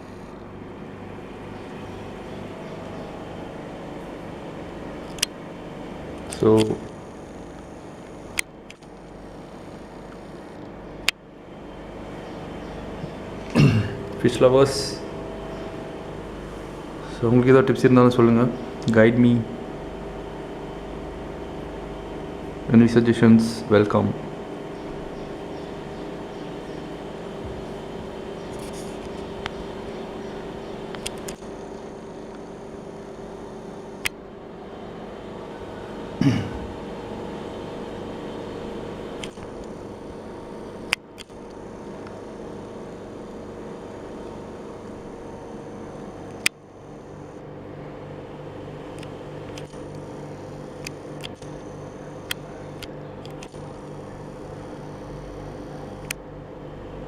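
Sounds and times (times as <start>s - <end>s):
low mechanical hum: 0.0s - 57.0s
sharp clicks: 5.0s - 5.4s, 6.2s - 9.2s, 30.9s - 33.3s, 39.2s - 39.8s, 40.9s - 42.2s, 49.0s - 50.1s, 50.7s - 54.7s.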